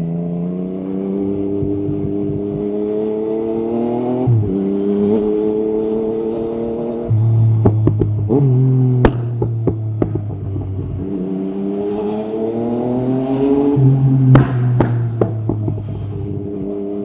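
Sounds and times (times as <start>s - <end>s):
motorcycle engine revving: 0.0s - 17.0s
sharp exhaust pops: 7.5s - 8.4s, 9.0s - 11.0s, 14.2s - 16.4s.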